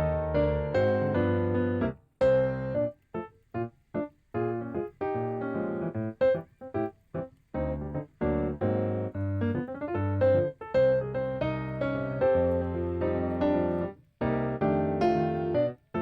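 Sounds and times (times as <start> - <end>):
background piano music: 0.0 - 16.0.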